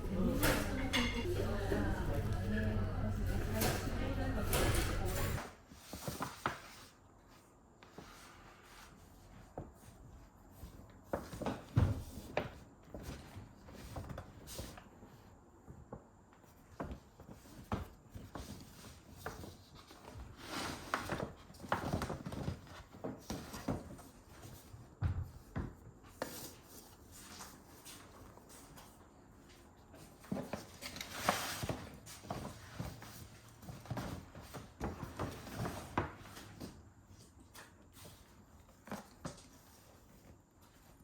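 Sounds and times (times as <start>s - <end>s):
handling knocks and rustles: 15.7s - 41.0s.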